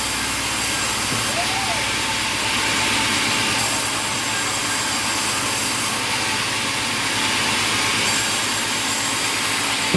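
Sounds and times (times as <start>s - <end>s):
sawmill machinery running: 0.0s - 9.9s.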